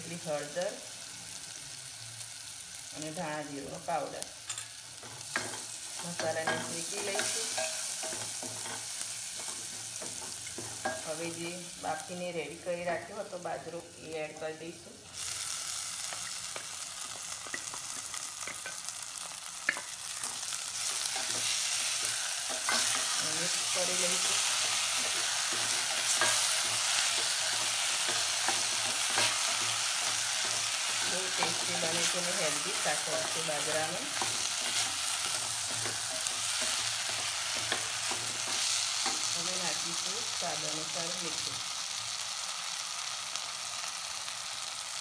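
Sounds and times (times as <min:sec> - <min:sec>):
grains sizzling in hot oil: 0:00.0 - 0:45.0.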